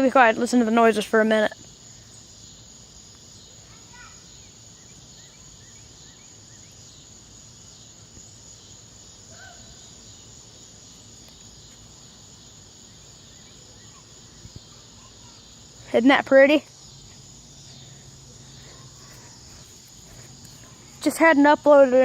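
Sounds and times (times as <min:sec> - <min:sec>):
cicadas and crickets chorus: 0:00.0 - 0:22.0.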